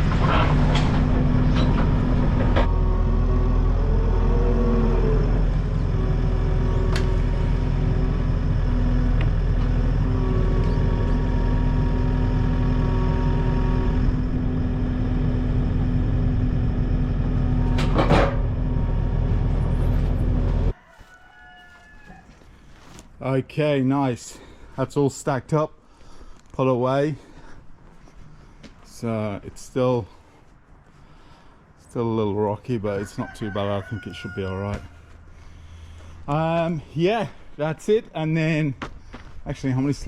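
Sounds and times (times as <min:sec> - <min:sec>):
machine engine running: 0:00.0 - 0:20.7.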